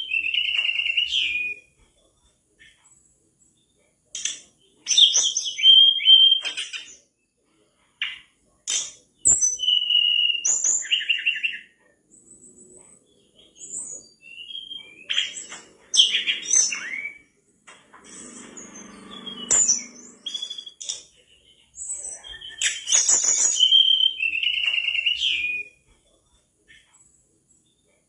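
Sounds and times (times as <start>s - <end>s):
bird singing whistled notes: 0.0s - 1.8s, 4.6s - 7.0s, 9.2s - 11.8s, 13.0s - 17.4s, 18.0s - 25.9s.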